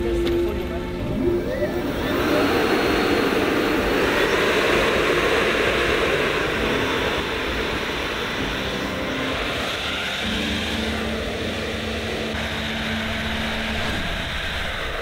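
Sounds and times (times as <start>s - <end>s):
model jet engines running: 0.0s - 15.0s.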